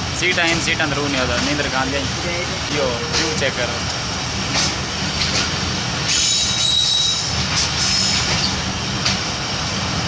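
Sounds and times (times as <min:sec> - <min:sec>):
train wheels rumbling: 0:00.0 - 0:10.0
high wheel squeal: 0:06.1 - 0:08.6.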